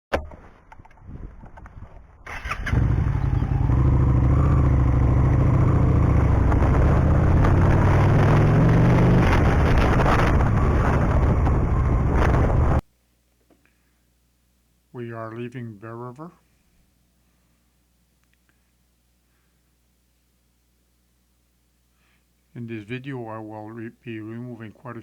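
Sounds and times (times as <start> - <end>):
motorcycle engine running: 2.4 - 12.8.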